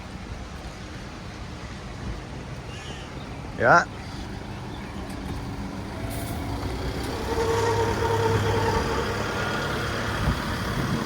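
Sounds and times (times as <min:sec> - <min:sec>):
engine humming drone: 0:03.4 - 0:11.0.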